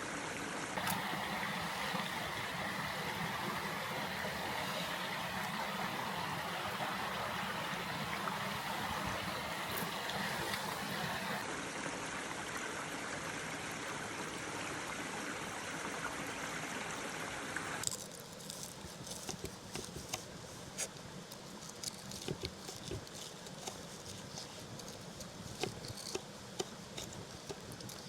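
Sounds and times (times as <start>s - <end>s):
mountain stream rushing: 0.8s - 12.1s
sharp clicks and crackles: 17.8s - 28.0s.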